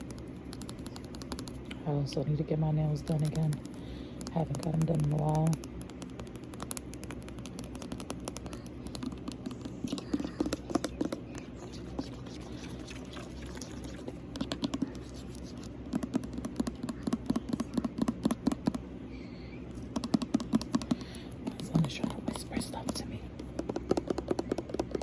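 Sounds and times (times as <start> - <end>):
room fan humming: 0.0 - 25.0
oil clicking inside bottle: 3.2 - 18.8.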